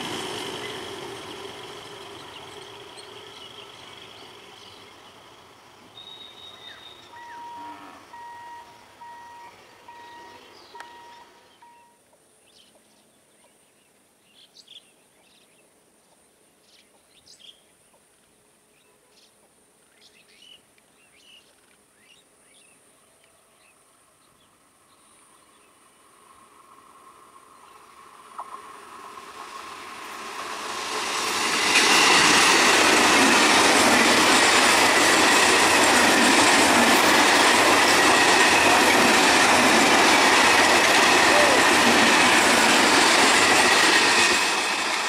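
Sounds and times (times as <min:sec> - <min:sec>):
electric train running: 0:00.0 - 0:11.4, 0:26.0 - 0:45.0
steady high-pitched hiss: 0:00.0 - 0:38.9
bird chirps: 0:06.0 - 0:12.7
short electronic beeps: 0:07.2 - 0:12.0.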